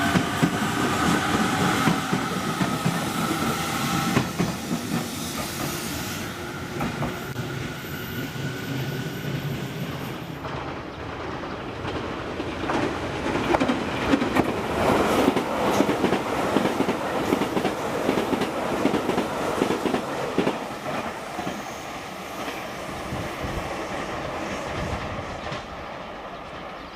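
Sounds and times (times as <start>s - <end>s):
train wheels clattering over rail joints: 10.4s - 21.6s.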